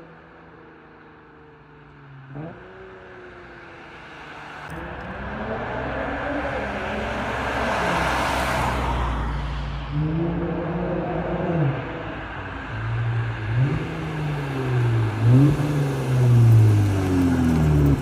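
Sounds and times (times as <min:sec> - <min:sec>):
car engine revving: 0:04.6 - 0:18.0.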